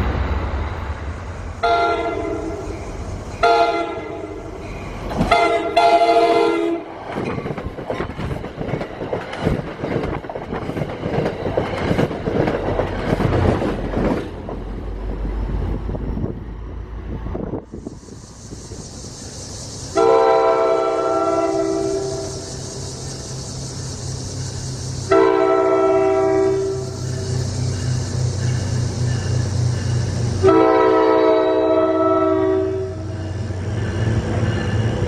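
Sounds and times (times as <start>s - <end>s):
train coaches passing rumble: 0.0s - 35.0s
train air horn blasts: 1.6s - 2.8s, 3.4s - 4.6s, 5.2s - 6.9s, 19.9s - 22.4s, 25.1s - 27.2s, 30.4s - 33.2s
wheels clicking over rails: 7.0s - 15.2s.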